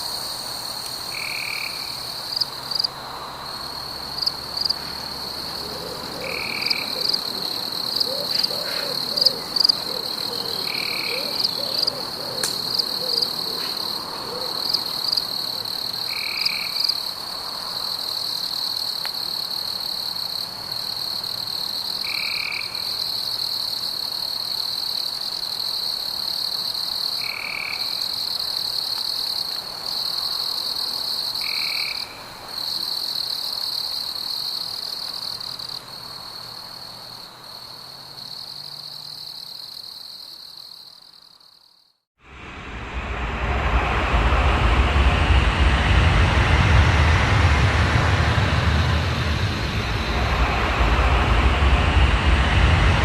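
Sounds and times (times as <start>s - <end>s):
frogs calling: 4.1s - 17.0s.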